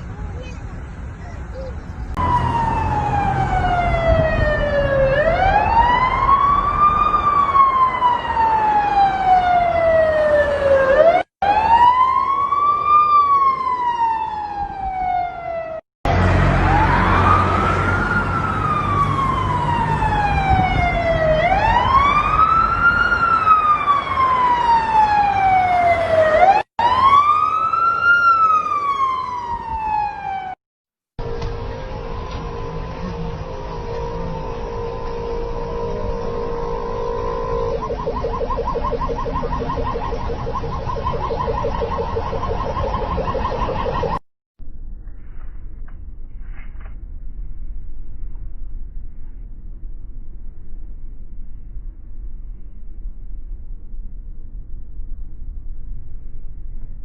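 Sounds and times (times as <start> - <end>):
emergency vehicle siren wailing: 2.1 - 30.6, 31.2 - 44.2
low rumble: 44.6 - 57.0.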